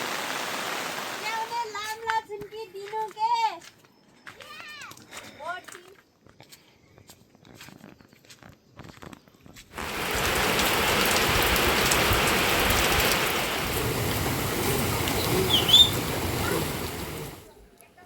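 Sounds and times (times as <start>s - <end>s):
heavy rain hissing: 0.0s - 1.7s, 9.8s - 17.6s.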